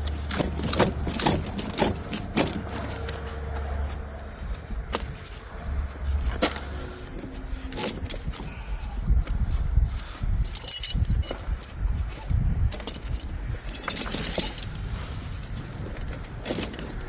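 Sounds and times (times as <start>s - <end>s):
tire chain links clinking: 0.0s - 17.0s.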